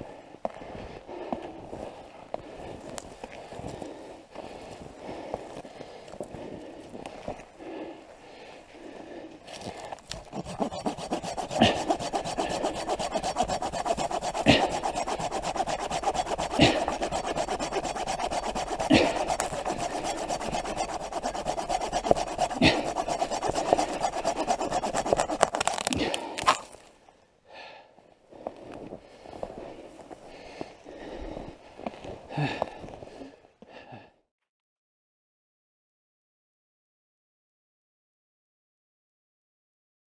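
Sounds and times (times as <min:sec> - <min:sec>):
hand saw cutting wood: 0:09.5 - 0:26.8.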